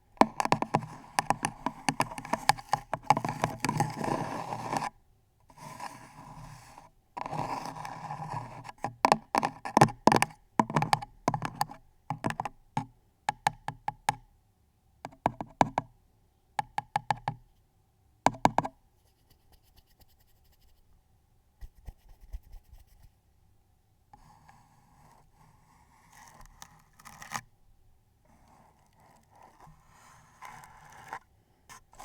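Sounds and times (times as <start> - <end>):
taps on hard object: 18.3 - 18.7
fine crackling and scratching: 28.4 - 31.3.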